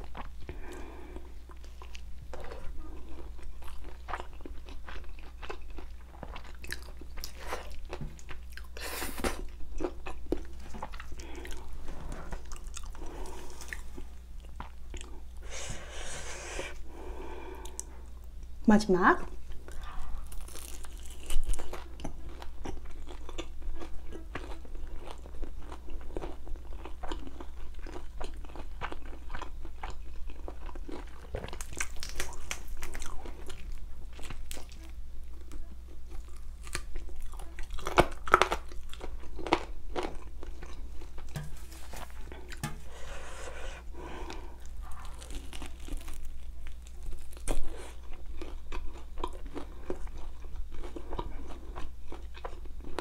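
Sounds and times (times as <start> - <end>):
person crunching crispy food: 19.7 - 34.9, 36.1 - 42.7, 44.0 - 53.0.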